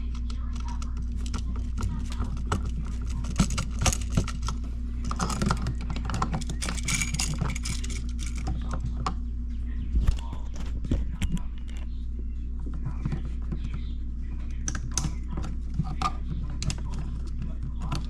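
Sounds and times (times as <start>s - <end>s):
steady low hum: 0.0s - 18.0s
clicks and rattles of tools: 3.2s - 8.8s.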